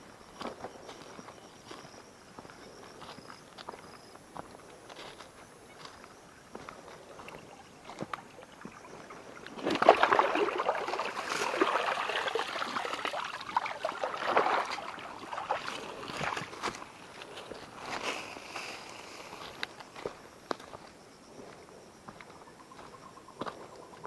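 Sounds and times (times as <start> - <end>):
water sloshing and splashing: 7.2 - 17.0.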